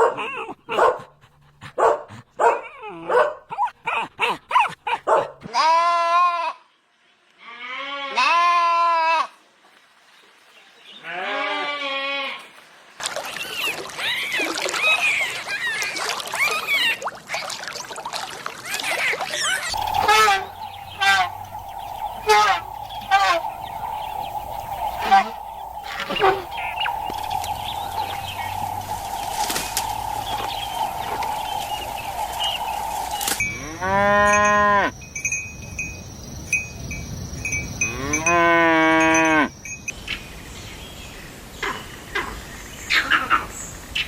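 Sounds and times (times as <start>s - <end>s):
steady high tone: 19.7s - 34.9s
cow mooing: 33.5s - 34.9s, 37.9s - 39.5s.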